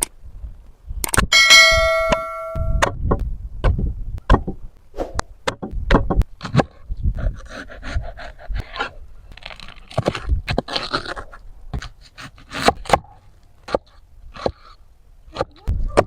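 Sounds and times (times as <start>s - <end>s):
sharp clicks and knocks: 1.0s - 4.6s, 5.4s - 6.7s
scraping and crunching food: 8.1s - 12.9s.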